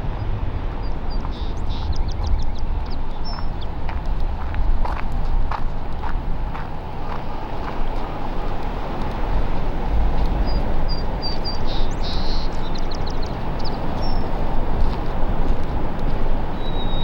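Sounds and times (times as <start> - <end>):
low rushing noise: 0.0 - 16.0
birds chirping and calling: 10.4 - 14.3.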